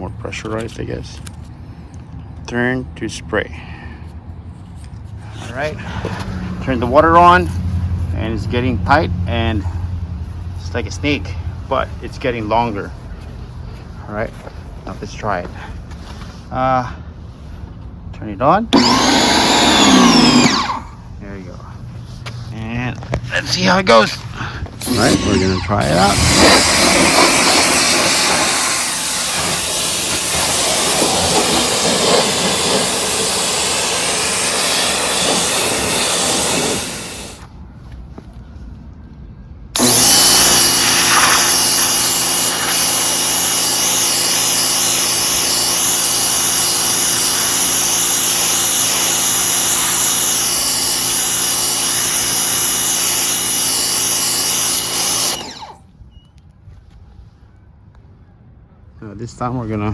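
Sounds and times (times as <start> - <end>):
pressure washer motor humming: 18.8 - 20.9, 24.8 - 37.5, 39.8 - 55.8
water jet spraying: 24.8 - 37.4, 39.8 - 55.7.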